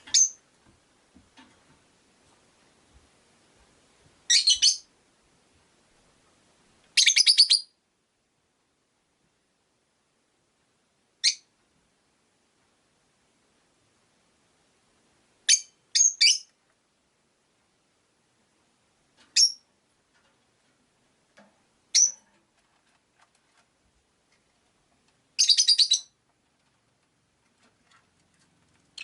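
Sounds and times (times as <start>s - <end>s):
shrill lovebird chirps: 4.3s - 4.9s, 7.0s - 7.7s, 11.2s - 11.5s, 15.5s - 16.5s, 19.4s - 19.6s, 21.9s - 22.2s, 25.4s - 26.2s.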